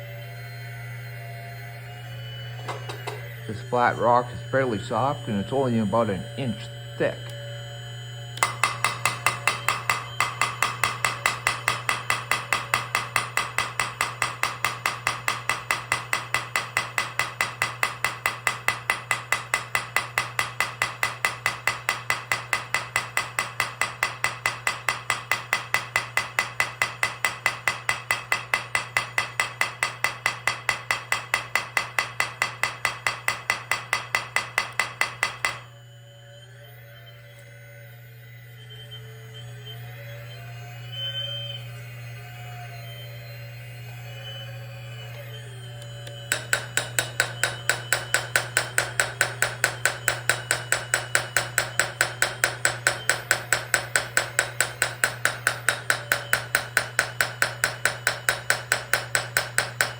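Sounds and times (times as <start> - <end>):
steady low hum: 0.0 - 59.9
model jackhammer pounding rock: 8.4 - 35.6, 46.3 - 59.9.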